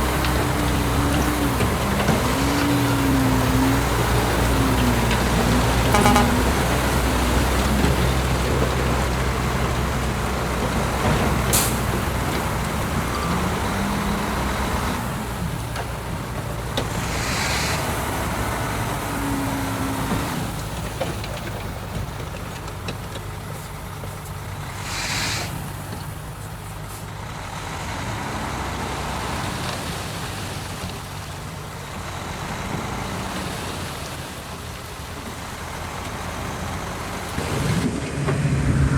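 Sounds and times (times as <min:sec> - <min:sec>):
heavy diesel engines running: 0:00.0 - 0:38.9
short hisses of air: 0:24.8 - 0:25.6.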